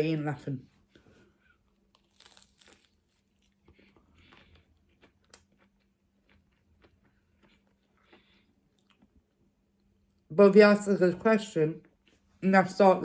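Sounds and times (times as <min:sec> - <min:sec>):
chewing food: 0:01.1 - 0:10.2.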